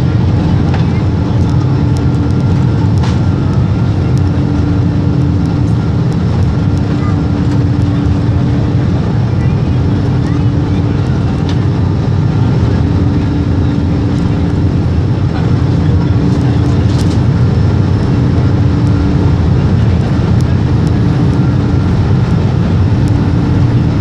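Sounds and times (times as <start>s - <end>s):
jet engines roaring in cabin: 0.0s - 24.0s.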